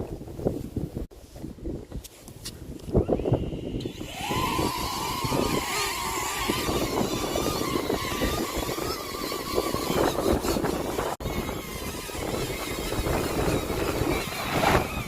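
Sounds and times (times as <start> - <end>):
wind buffeting microphone: 0.0 - 15.0
drone propellers whining: 3.0 - 15.0.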